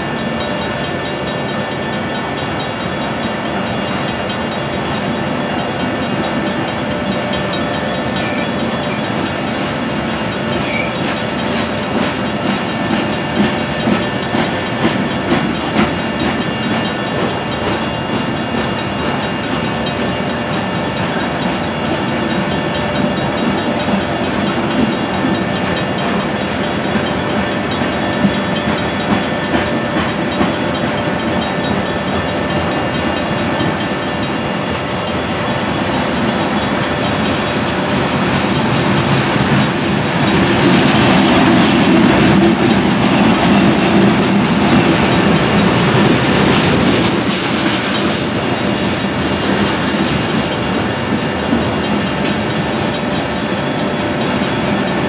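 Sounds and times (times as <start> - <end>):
electronic crossing bell ringing: 0.0 - 38.9
mechanical crossing bell ringing: 0.0 - 39.5, 40.2 - 55.0
train wheels clicking over rail joints: 0.0 - 55.0.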